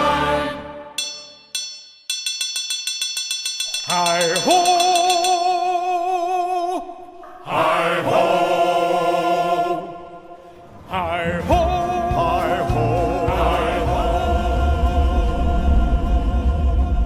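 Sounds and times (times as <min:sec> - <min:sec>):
wordless choir singing: 0:00.0 - 0:01.0, 0:06.2 - 0:17.0
coaster train rumbling on track: 0:10.9 - 0:17.0.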